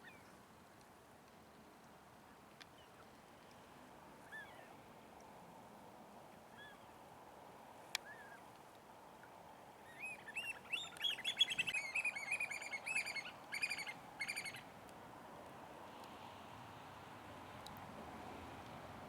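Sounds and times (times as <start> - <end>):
oystercatchers piping: 9.8 - 14.7.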